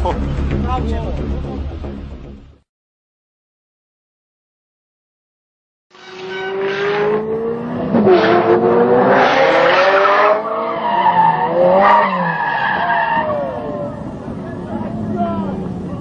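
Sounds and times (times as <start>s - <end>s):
car engine revving: 6.1s - 16.0s.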